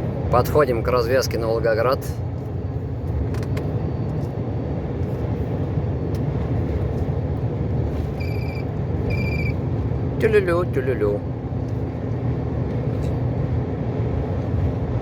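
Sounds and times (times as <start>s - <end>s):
truck engine and road rumble: 0.0s - 15.0s
short electronic beeps: 8.2s - 9.6s.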